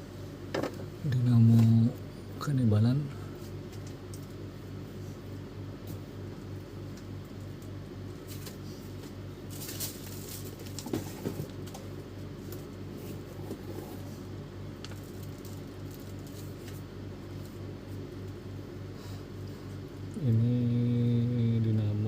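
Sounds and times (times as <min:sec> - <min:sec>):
pulsing low hum: 0:11.8 - 0:22.0.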